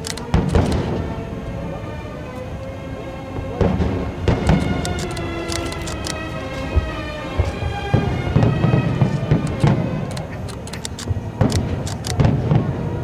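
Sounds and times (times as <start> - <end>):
music with long held tones: 0.0 - 10.1
fireworks booming and crackling: 0.0 - 13.0.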